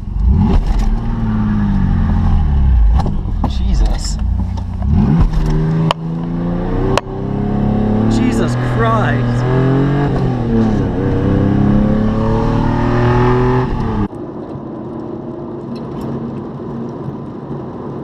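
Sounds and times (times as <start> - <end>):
pickup engine accelerating: 0.0 - 14.1
road noise: 0.0 - 18.0.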